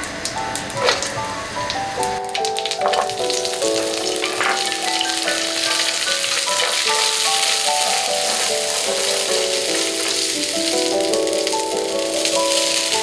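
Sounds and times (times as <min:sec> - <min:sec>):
slow background music: 0:00.0 - 0:13.0
food sizzling in a pan: 0:02.4 - 0:13.0
spatula stirring in pan: 0:03.6 - 0:11.4.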